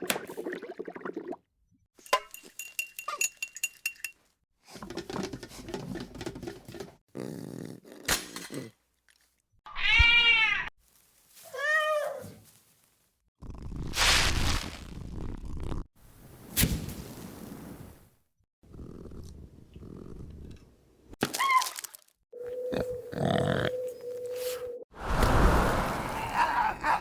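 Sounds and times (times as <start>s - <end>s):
cat meowing: 9.7s - 10.7s, 11.5s - 12.3s.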